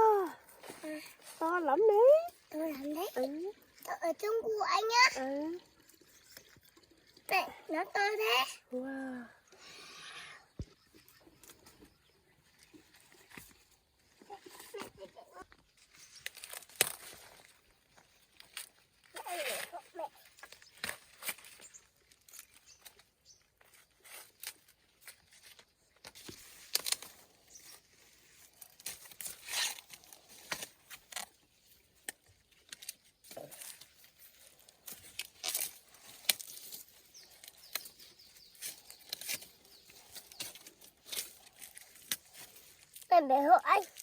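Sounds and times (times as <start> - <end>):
rustling and tearing leaves: 12.6 - 44.0.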